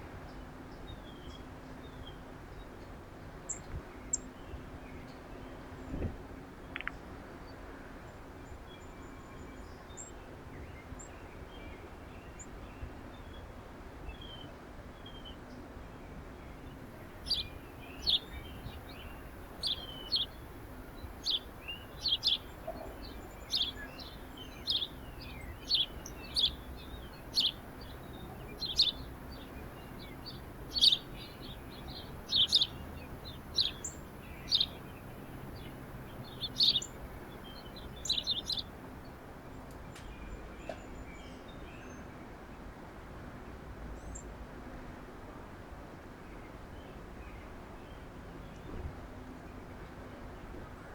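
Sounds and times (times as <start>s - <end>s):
songbird high chirps: 16.4s - 42.1s.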